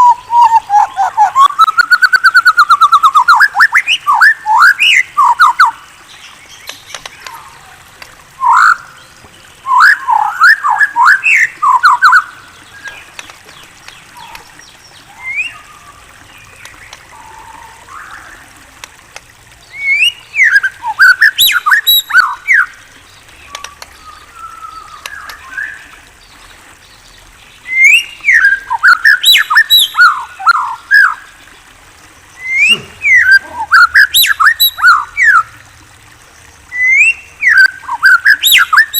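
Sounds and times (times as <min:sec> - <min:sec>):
songbird whistling: 0:09.6 - 0:12.3, 0:15.2 - 0:16.0, 0:19.8 - 0:22.7, 0:27.7 - 0:31.2, 0:32.4 - 0:35.5, 0:36.8 - 0:38.9.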